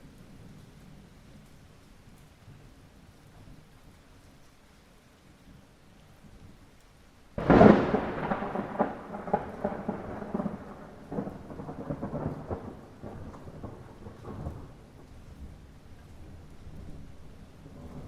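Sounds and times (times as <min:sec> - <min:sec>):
light rain: 0:00.0 - 0:18.0
thunderclap rolling: 0:07.4 - 0:18.0.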